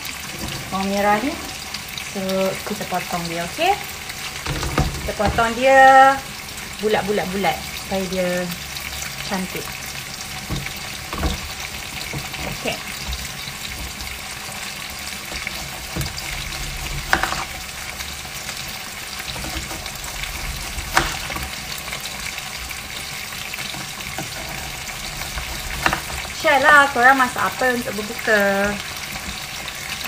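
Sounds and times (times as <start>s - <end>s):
beef sizzling in hot oil: 0.0s - 30.0s
knocks and clicks: 4.4s - 5.6s, 10.4s - 14.2s, 23.6s - 26.4s.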